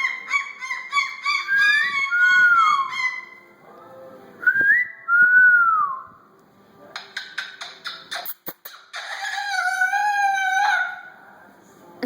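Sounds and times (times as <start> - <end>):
cockatoo calling shrilly: 0.0 - 3.5.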